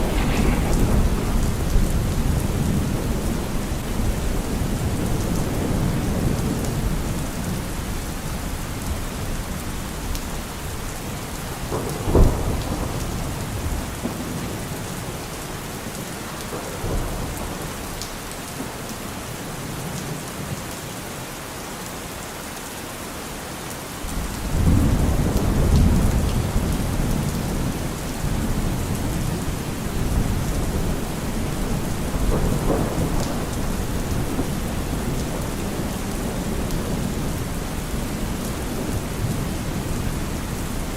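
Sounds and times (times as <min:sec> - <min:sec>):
thunder crack: 0:00.0 - 0:06.6, 0:11.6 - 0:14.5, 0:24.1 - 0:40.2
low rumble of thunder: 0:00.0 - 0:18.8, 0:24.1 - 0:40.9
heavy rain hissing: 0:00.0 - 0:19.6.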